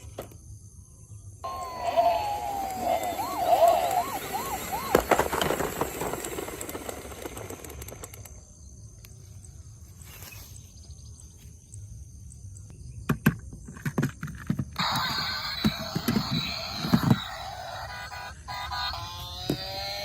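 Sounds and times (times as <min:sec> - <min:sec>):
toy siren warbling: 0:01.4 - 0:07.8, 0:14.8 - 0:20.0.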